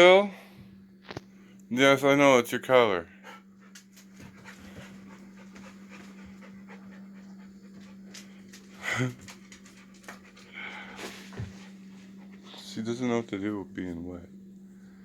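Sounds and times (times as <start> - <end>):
steady low hum: 0.0 - 15.0
puppy panting: 3.2 - 13.0.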